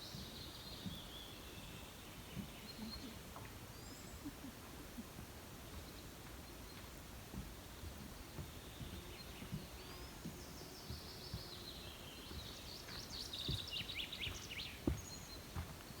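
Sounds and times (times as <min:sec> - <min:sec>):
songbirds chirping and singing: 0:08.1 - 0:15.5.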